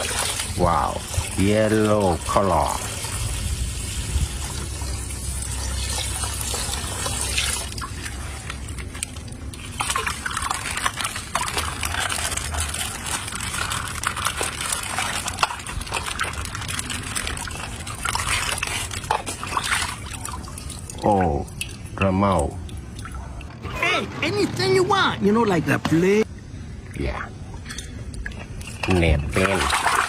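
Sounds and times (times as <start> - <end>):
water sloshing and trickling: 0.0 - 30.0
small clicks and splashes: 5.3 - 23.2.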